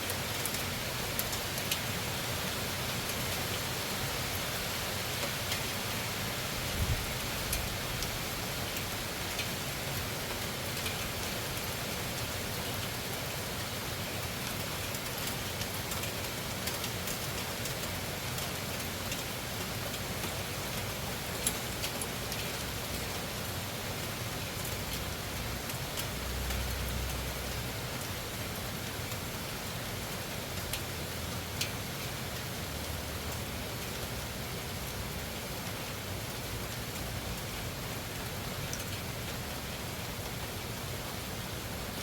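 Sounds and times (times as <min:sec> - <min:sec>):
loud rain falling: 0:00.0 - 0:42.0
raindrops ticking sharply: 0:24.5 - 0:40.6.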